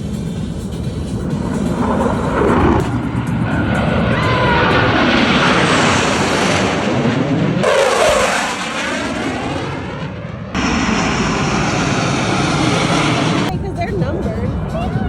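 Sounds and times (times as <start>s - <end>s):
jets passing low overhead: 0.0s - 15.0s.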